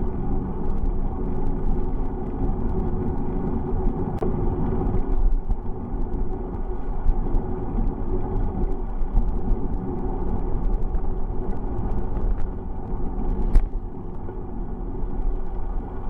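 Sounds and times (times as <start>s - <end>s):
bicycle tyre noise: 0.0s - 16.0s
light ticks and rattles: 0.0s - 16.0s
wind buffeting microphone: 0.0s - 16.0s.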